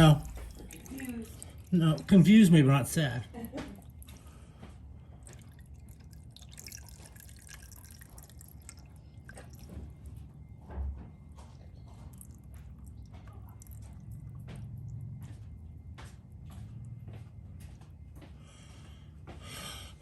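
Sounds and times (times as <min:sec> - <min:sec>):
fluid dripping: 0:00.0 - 0:10.6, 0:11.8 - 0:15.3
low steady hum: 0:00.0 - 0:20.0.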